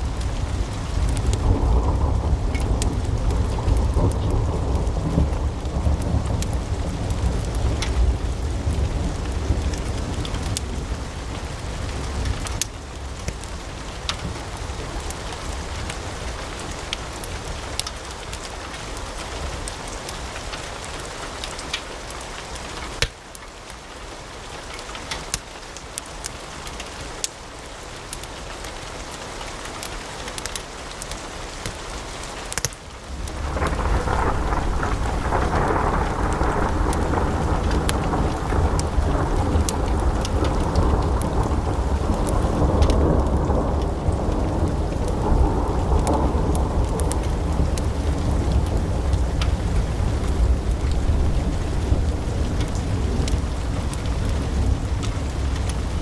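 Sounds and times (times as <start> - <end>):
wood fire crackling: 0.0 - 23.7, 24.4 - 56.0
low rumble: 33.1 - 56.0.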